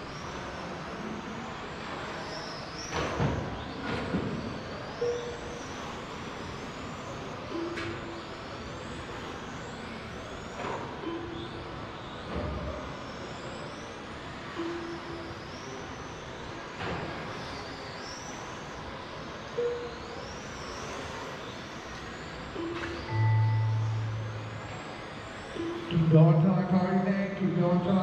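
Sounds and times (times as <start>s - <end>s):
rc car motors whining: 0.0s - 28.0s
short beeps: 5.0s - 5.5s, 14.5s - 15.2s, 19.6s - 20.2s, 22.6s - 26.2s.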